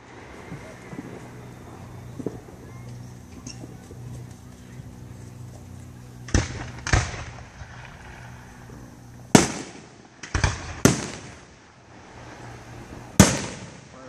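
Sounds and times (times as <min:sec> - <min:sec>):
fireworks bangs with echo: 0:00.0 - 0:02.7, 0:05.8 - 0:11.6, 0:13.1 - 0:14.0.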